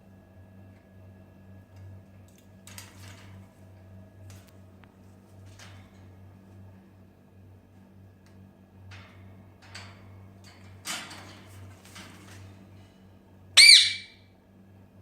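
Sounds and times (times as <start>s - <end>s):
parrot squawk: 13.6s - 14.2s.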